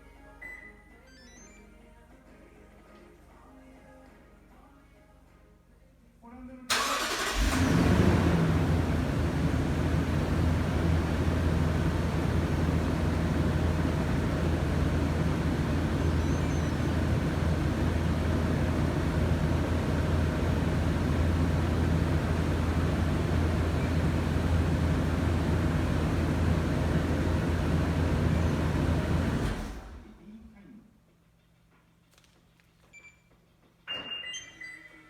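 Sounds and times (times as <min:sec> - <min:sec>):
car engine idling: 0:06.7 - 0:30.0.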